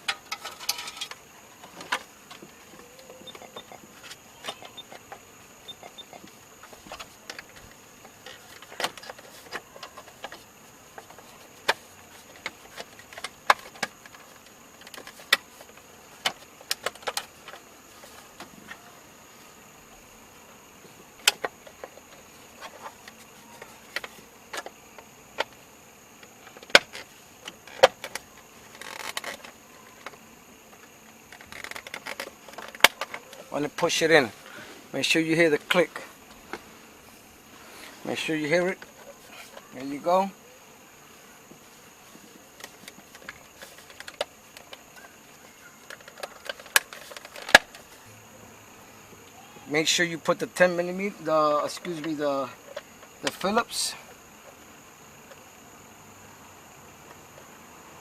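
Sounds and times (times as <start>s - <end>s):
rustling scrape: 35.7s - 39.7s.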